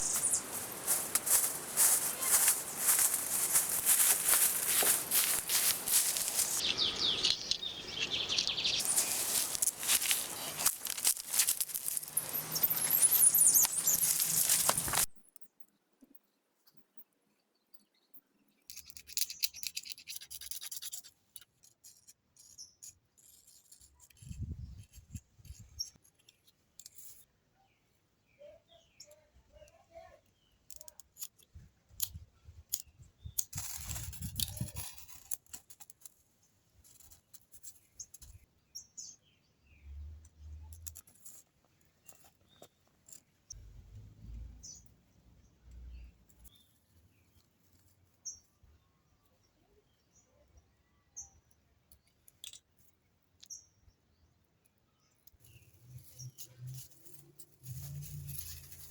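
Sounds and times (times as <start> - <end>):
birds chirping: 0.0 - 15.1.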